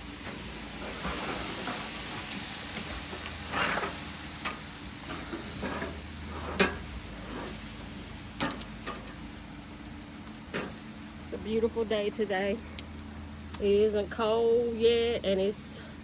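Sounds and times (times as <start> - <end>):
meat sizzling on a grill: 0.0 - 15.6
short scrapes on a grill: 0.6 - 9.2.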